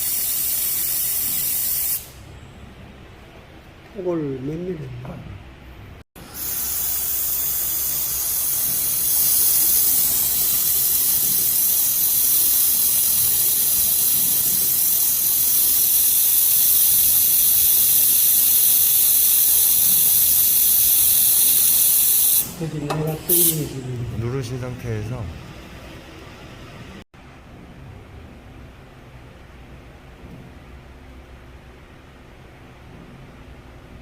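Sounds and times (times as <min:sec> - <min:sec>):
welding torch gas hiss: 0:00.0 - 0:02.2, 0:06.2 - 0:23.8.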